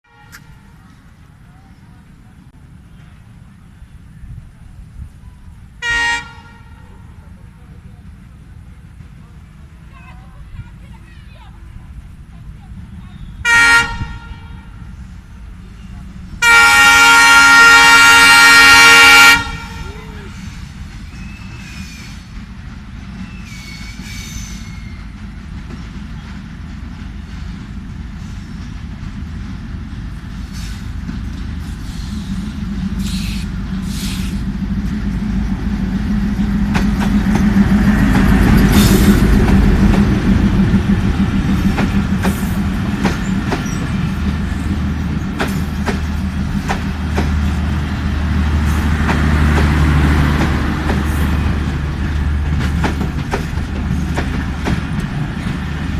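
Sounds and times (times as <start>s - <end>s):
passenger train passing: 0.0s - 55.9s
wheels clattering over rail joints: 36.0s - 55.9s.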